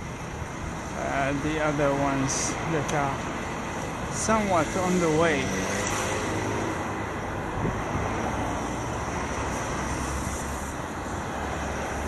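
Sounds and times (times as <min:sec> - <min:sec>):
road and traffic rumble: 0:00.0 - 0:12.0
wind over microphone: 0:07.5 - 0:08.0.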